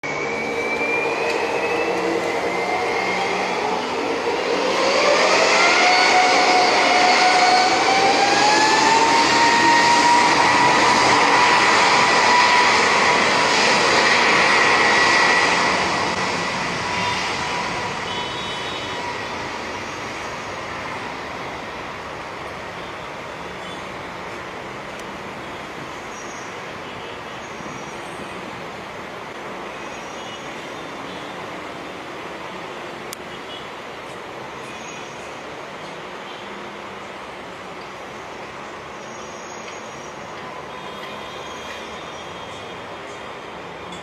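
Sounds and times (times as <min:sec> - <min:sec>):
jet engine whine rising: 0:00.0 - 0:22.1
jet engine rushing roar: 0:00.0 - 0:22.7.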